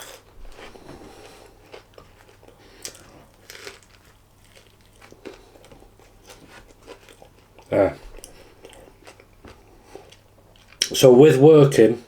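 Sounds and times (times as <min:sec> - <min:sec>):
chewing with soft crunches: 0:00.0 - 0:11.0.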